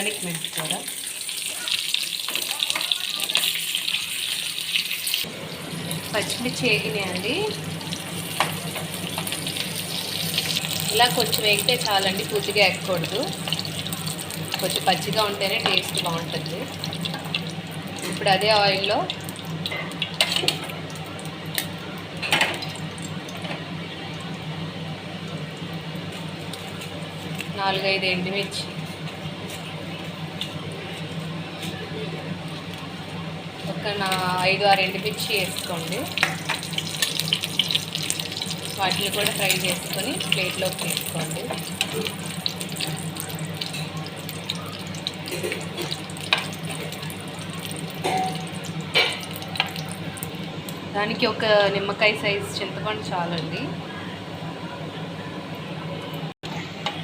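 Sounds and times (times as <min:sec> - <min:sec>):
chillies sizzling in oil: 0:00.0 - 0:31.7, 0:33.6 - 0:53.6.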